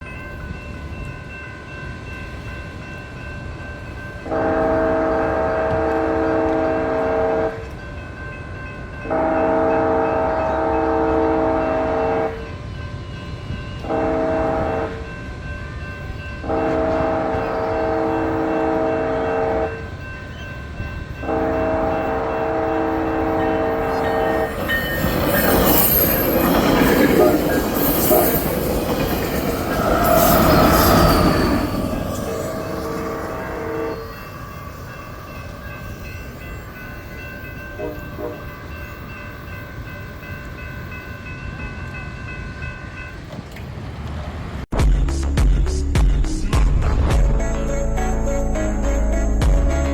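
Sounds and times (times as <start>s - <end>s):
train rumbling past: 0.0s - 49.9s
crossing horn blasts: 4.3s - 7.7s, 9.1s - 12.4s, 13.8s - 15.0s, 16.4s - 19.9s, 21.2s - 24.6s, 29.8s - 34.4s, 37.8s - 38.6s
high-pitched wheel noise: 21.0s - 37.6s.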